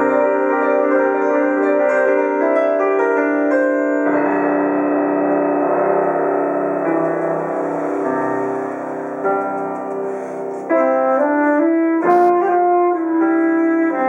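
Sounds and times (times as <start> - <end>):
piano chords: 0.0 - 14.0
alto saxophone held notes: 10.2 - 14.0.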